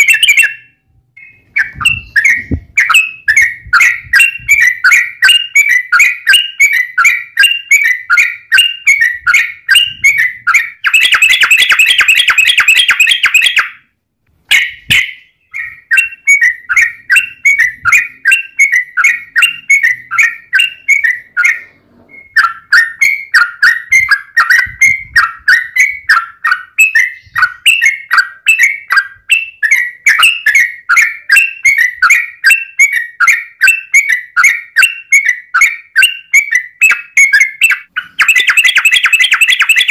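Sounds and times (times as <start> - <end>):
bird rolling trill: 36.8 - 39.9.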